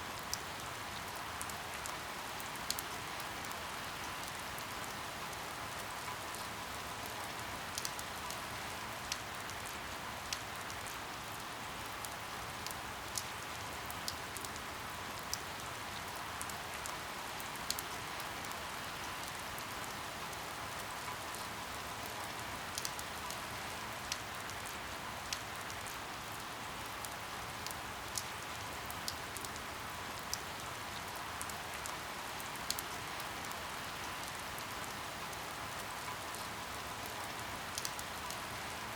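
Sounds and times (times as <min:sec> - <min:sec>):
steady rain hiss: 0:00.0 - 0:38.9
raindrop ticks: 0:06.0 - 0:08.4, 0:21.0 - 0:23.4, 0:27.0 - 0:38.7.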